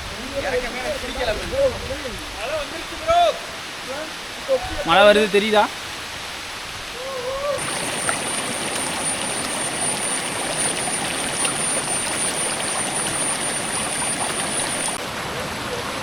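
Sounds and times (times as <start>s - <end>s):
heavy rain hissing: 0.0s - 16.0s
high-pitched whine: 7.6s - 15.0s.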